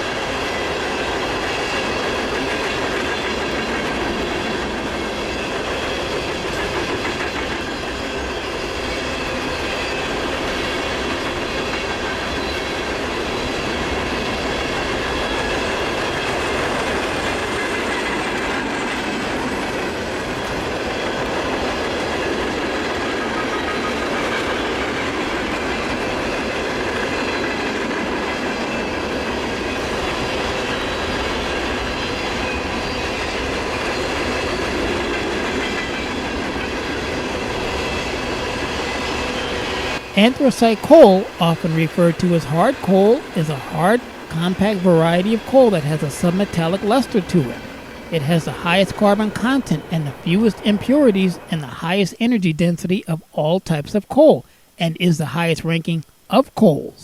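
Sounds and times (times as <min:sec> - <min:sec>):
train wheels clattering on rails: 0:00.0 - 0:40.2.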